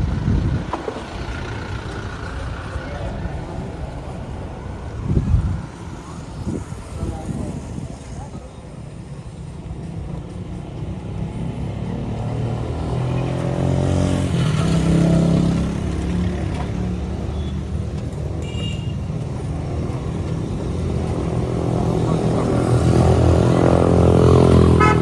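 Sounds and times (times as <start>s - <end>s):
street traffic: 0.0s - 25.0s
motorbike engine speeding up: 11.1s - 17.0s, 20.0s - 25.0s.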